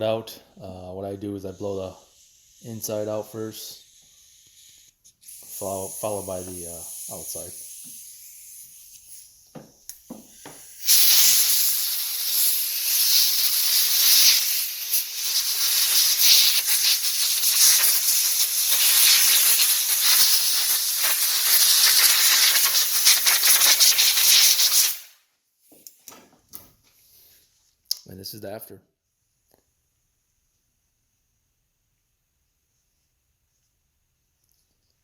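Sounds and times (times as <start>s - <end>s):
compressed air hiss: 1.2s - 25.2s.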